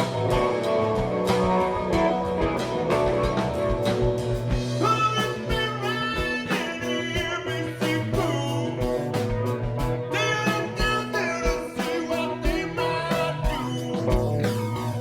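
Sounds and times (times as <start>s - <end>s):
bass: 0.0s - 15.0s
electric guitar bending notes: 0.0s - 15.0s
steady drum beat: 0.0s - 15.0s.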